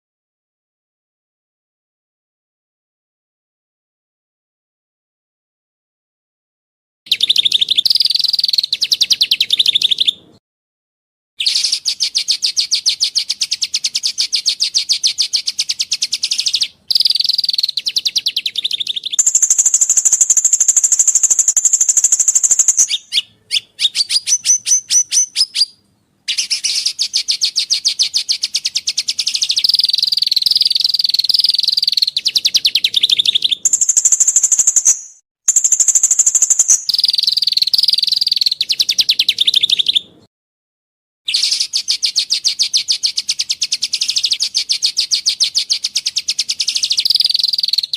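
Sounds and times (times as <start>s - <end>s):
songbird fast high trills: 15.2s - 39.9s.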